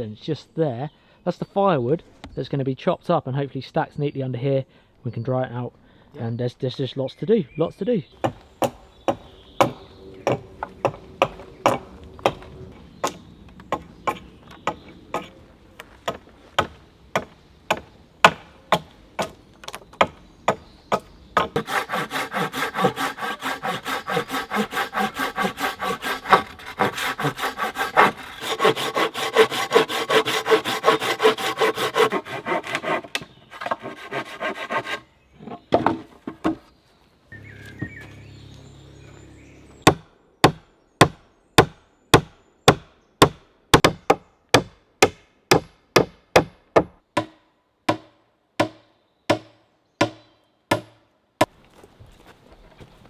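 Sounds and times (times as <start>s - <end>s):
sharp blows on wood: 20.0s - 35.0s
hand saw cutting timber: 21.4s - 35.0s.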